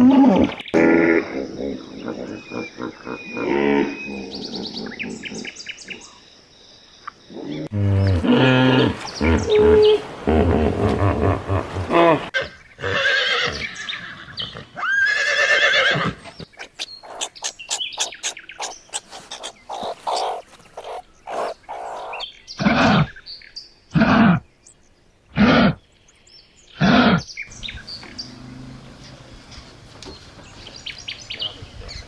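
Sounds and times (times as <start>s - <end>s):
animal calls: 0.0s - 6.0s, 7.3s - 23.2s
animal clicks and chirps: 16.4s - 22.2s.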